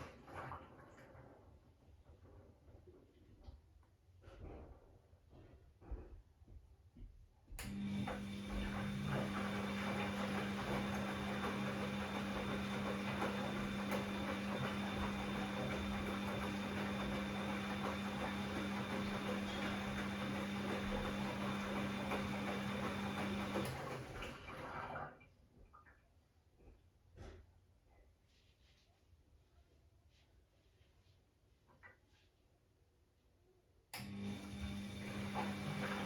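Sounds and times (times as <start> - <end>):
washing machine humming with water: 0.0 - 2.8, 7.6 - 26.1, 34.0 - 36.0.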